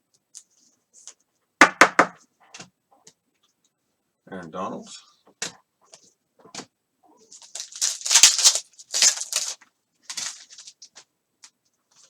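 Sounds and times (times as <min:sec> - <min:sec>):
cards and packaging rustling: 0:06.5 - 0:12.0.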